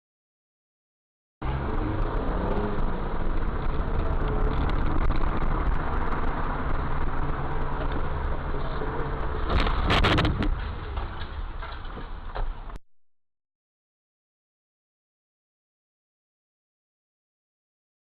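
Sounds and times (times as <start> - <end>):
car engine and road rumble: 1.4 - 12.8.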